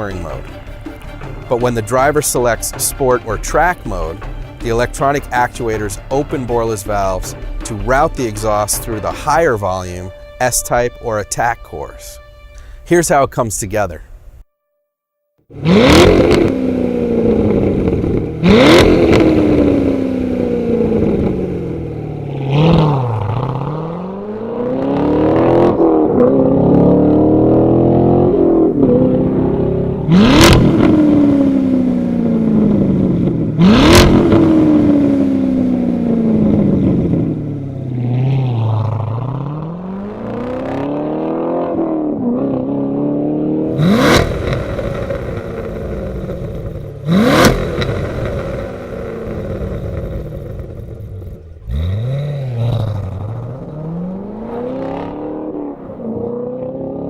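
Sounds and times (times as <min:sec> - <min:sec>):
car engine revving: 0:00.0 - 0:10.4, 0:15.5 - 0:57.0
exhaust crack: 0:15.5 - 0:56.9.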